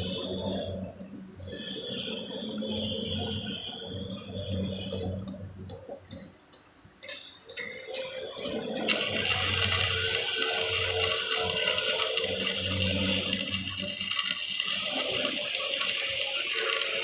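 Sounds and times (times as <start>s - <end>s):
arc welding crackle: 7.2s - 17.0s.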